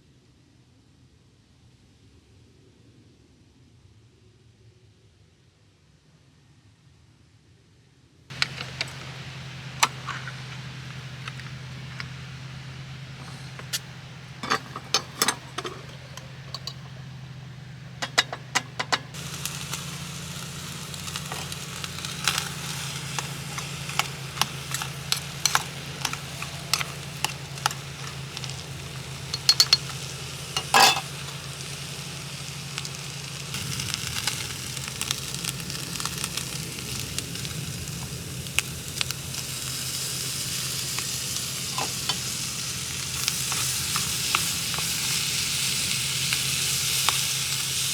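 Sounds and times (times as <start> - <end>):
corn sizzling in a pan: 8.3 - 47.9
steady low hum: 8.3 - 47.9.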